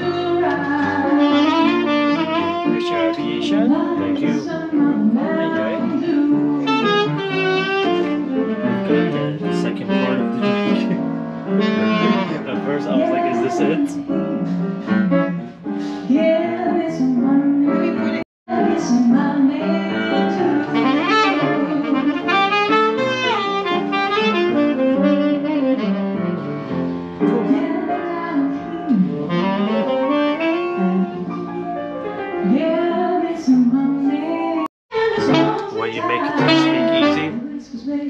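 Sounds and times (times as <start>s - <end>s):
jazz with saxophone lead: 0.0s - 38.0s.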